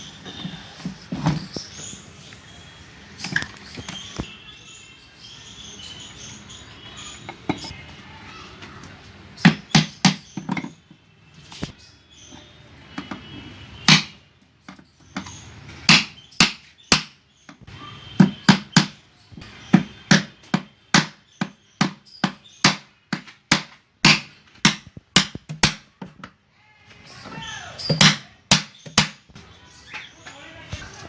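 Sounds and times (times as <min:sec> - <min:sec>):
sharp knocks on wood: 0:09.4 - 0:10.8, 0:13.8 - 0:15.3, 0:15.9 - 0:19.0, 0:19.7 - 0:26.3, 0:27.9 - 0:29.4.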